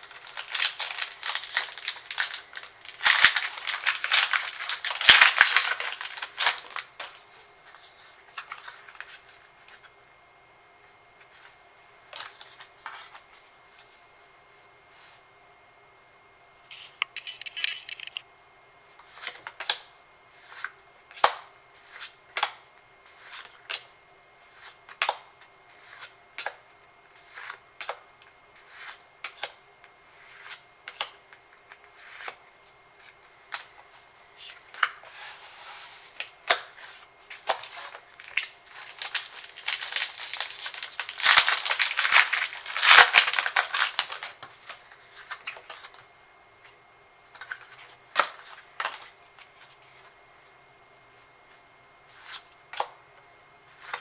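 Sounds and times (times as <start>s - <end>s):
foil pack crinkling and tearing: 0.0s - 7.2s, 37.3s - 45.9s
trading cards flipping: 16.7s - 18.2s, 37.4s - 44.3s.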